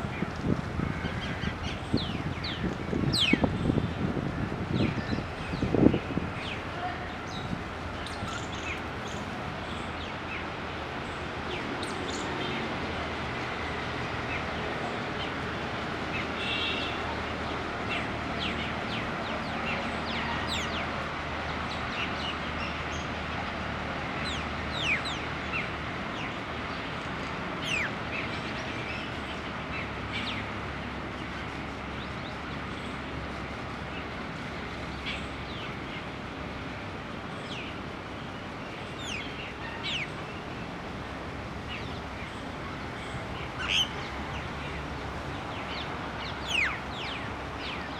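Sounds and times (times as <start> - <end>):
birds chirping: 0.0 - 4.1, 4.7 - 10.4, 27.6 - 47.9.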